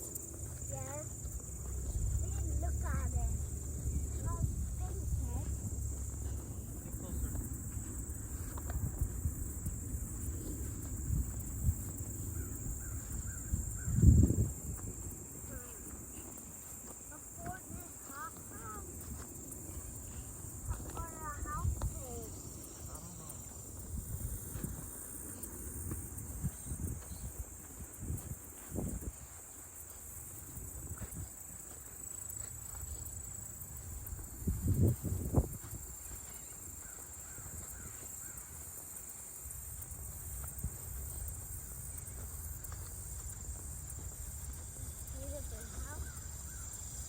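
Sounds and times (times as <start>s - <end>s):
low wind rumble: 0.0s - 29.4s, 33.3s - 36.2s
high-pitched insect drone: 0.0s - 47.0s.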